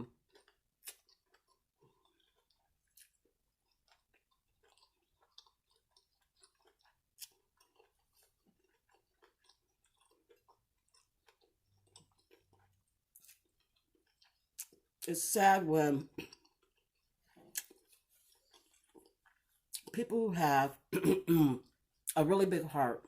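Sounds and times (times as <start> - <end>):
chewing crunchy food: 0.0 - 15.1, 16.0 - 20.1, 20.7 - 22.2
wet mouth clicks: 0.4 - 3.2, 17.5 - 19.9.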